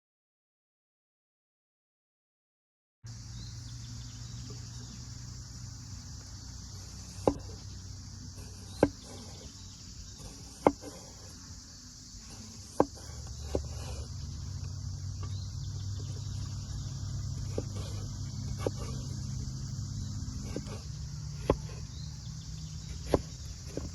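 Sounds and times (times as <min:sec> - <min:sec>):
high-pitched insect chorus: 0:03.1 - 0:23.9
sharp single knocks: 0:20.4 - 0:22.0.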